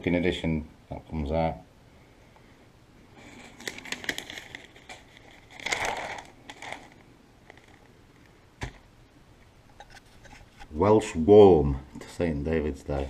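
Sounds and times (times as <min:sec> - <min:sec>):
newspaper pages rustling: 0:03.2 - 0:07.9.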